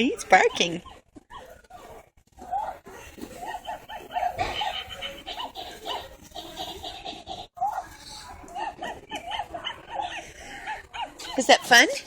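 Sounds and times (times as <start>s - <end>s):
small child giggling: 3.5s - 7.7s.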